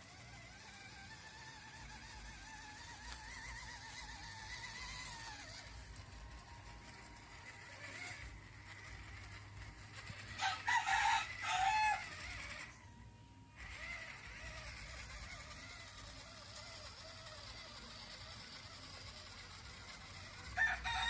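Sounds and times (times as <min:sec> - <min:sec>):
rooster crowing: 0:10.3 - 0:12.4, 0:20.6 - 0:21.0.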